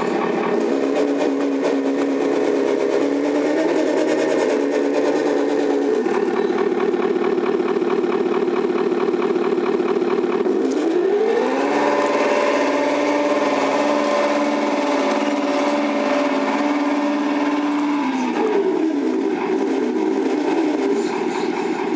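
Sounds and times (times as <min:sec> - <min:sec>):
simulated diesel engine from speaker: 0:00.0 - 0:21.9.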